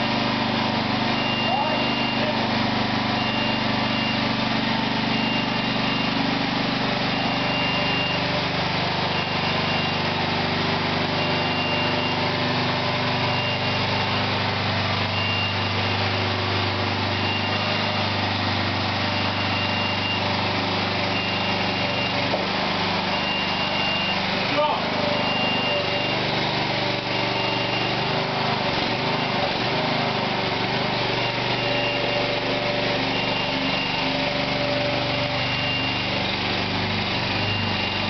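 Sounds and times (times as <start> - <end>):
small engine running: 0.0 - 38.0
high-pitched warning beep: 1.2 - 2.4, 3.2 - 4.4, 5.0 - 8.3, 9.1 - 10.2, 11.1 - 12.3, 13.1 - 14.4, 15.1 - 18.2, 19.1 - 20.3, 21.1 - 22.4, 23.1 - 26.3, 27.1 - 28.2, 31.2 - 36.2, 37.3 - 38.0.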